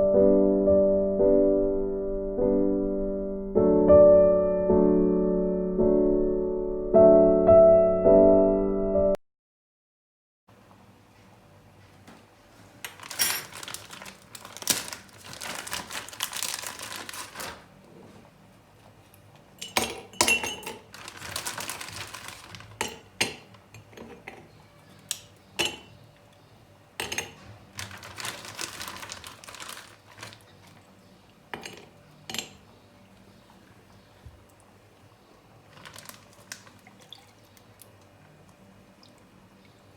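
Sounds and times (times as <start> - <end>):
glassware and cutlery clinking: 19.6 - 20.9, 22.8 - 24.5, 25.6 - 25.9, 27.0 - 27.4, 31.5 - 32.6.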